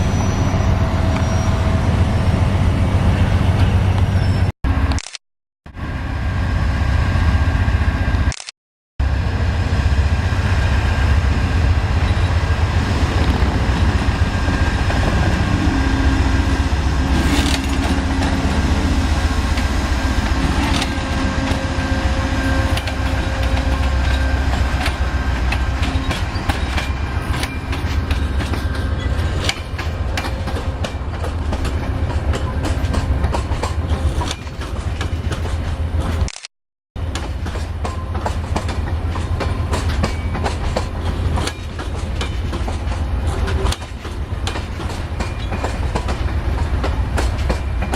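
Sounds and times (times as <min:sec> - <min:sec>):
diesel train rumble: 0:00.0 - 0:05.0, 0:05.7 - 0:08.4, 0:09.0 - 0:36.3, 0:37.0 - 0:47.9
train wheels clacking on rail joints: 0:19.5 - 0:36.3, 0:37.0 - 0:47.9.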